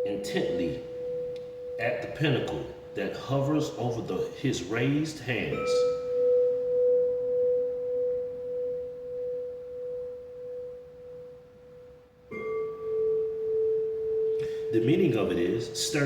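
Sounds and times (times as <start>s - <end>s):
singing bowl ringing: 0.0s - 16.0s.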